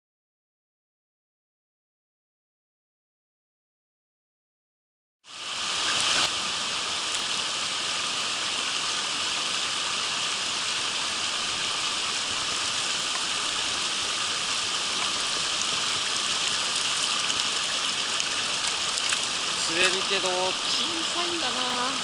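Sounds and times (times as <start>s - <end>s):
stream rushing over rocks: 5.3s - 22.0s.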